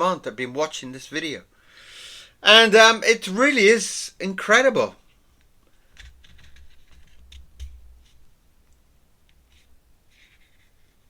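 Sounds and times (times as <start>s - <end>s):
pen scratching on paper: 9.5s - 11.0s.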